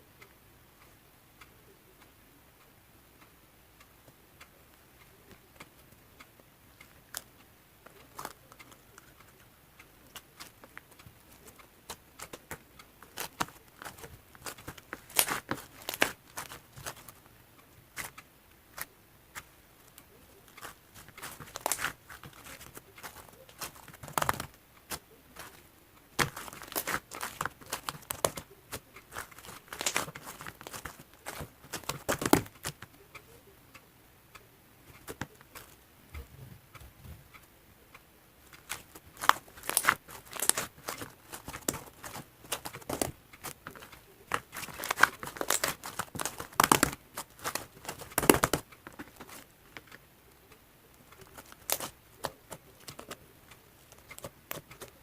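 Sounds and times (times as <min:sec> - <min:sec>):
slime crunching and crackling: 0:10.1 - 0:17.3, 0:18.7 - 0:32.9, 0:38.5 - 0:50.0, 0:51.0 - 0:53.2.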